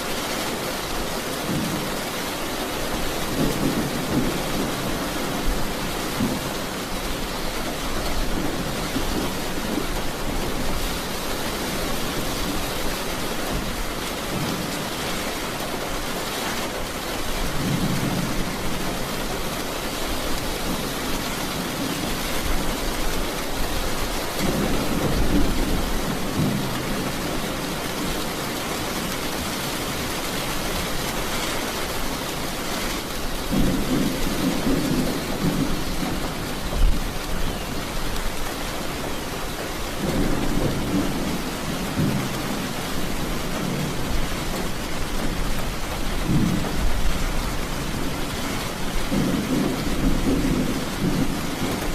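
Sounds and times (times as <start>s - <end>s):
heavy rain hissing: 0.0s - 51.9s
thunder rumbling: 2.9s - 15.0s, 20.4s - 31.1s, 33.1s - 38.6s, 39.2s - 51.9s.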